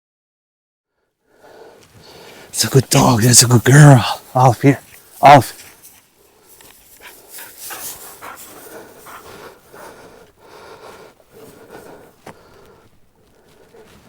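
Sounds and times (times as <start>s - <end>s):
dog panting: 6.6s - 14.0s.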